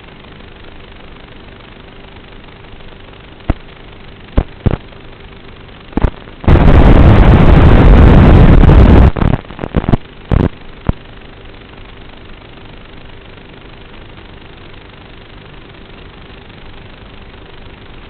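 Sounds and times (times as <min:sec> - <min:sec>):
loud low rush of noise: 0:05.9 - 0:11.3.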